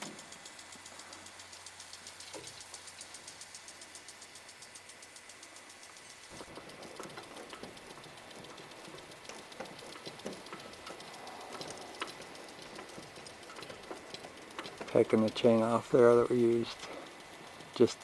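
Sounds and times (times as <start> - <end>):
chain and hardware clinking: 6.3 - 18.0.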